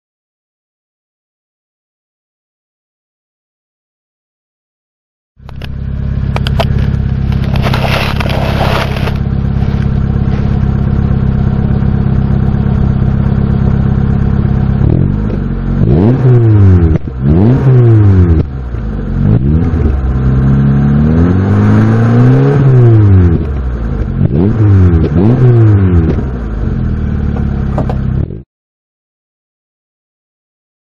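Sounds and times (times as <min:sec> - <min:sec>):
car engine idling and revving: 0:05.4 - 0:28.4.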